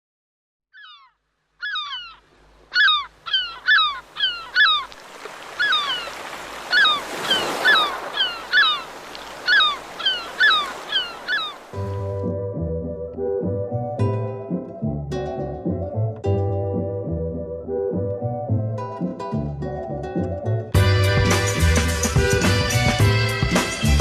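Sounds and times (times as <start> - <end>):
birds squawking: 0.8 - 11.9
plucked-string music: 11.8 - 24.0.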